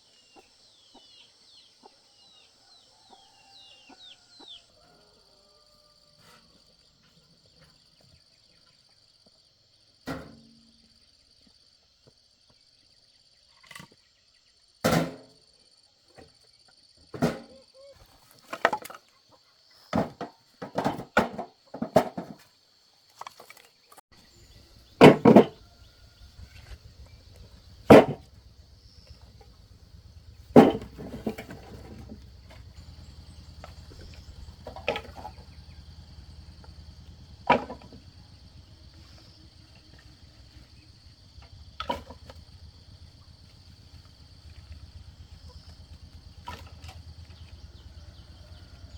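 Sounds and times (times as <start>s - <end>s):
high insect whine: 24.2s - 48.9s
low hum: 24.4s - 48.9s
hammering wood: 24.8s - 25.6s, 26.2s - 38.7s.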